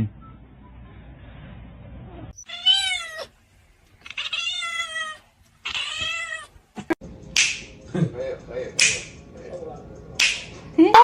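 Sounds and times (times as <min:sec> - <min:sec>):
cat meowing: 0:02.3 - 0:03.4, 0:04.0 - 0:06.6.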